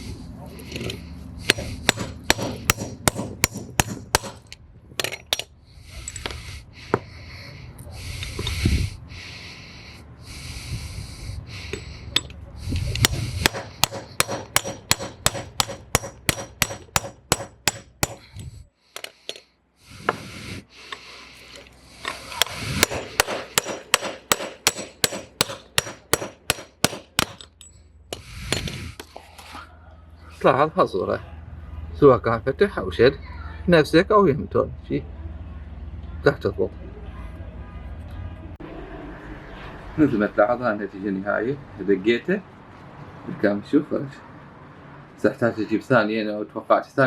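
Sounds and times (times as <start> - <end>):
hammer striking metal: 1.5 - 5.5, 13.0 - 18.3, 22.4 - 28.8.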